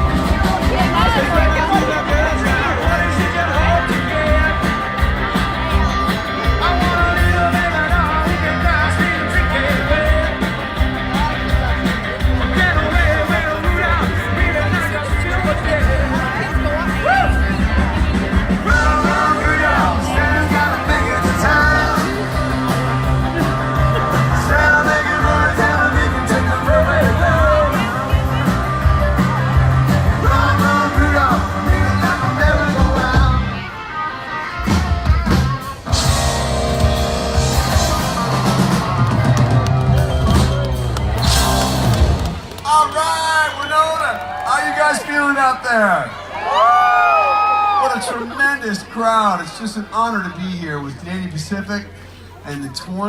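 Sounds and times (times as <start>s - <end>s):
pulsing bass: 0.0s - 33.6s, 34.8s - 42.6s
electric guitar: 0.0s - 42.6s
live rock and roll band: 0.0s - 52.8s
person singing: 18.6s - 28.5s, 29.8s - 38.6s.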